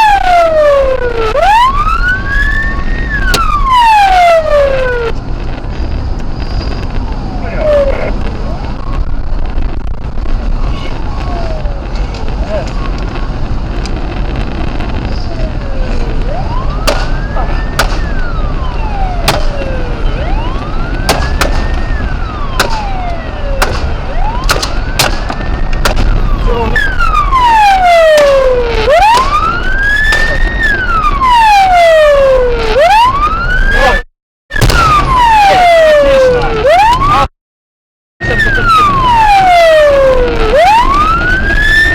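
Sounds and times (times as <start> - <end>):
police siren wailing: 0.0 - 37.3, 38.2 - 41.9
sharp cracks: 16.6 - 18.3, 19.2 - 19.9, 20.5 - 27.4, 28.1 - 31.1.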